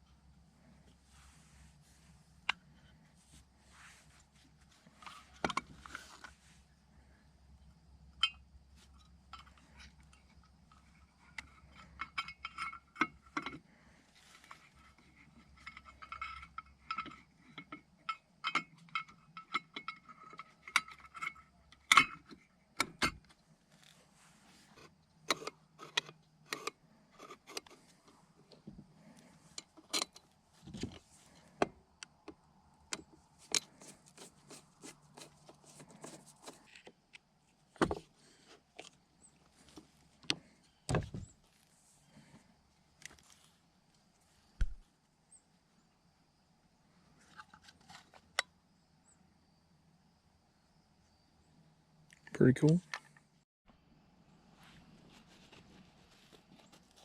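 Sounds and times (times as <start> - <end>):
small metal parts clinking: 14.3 - 22.3.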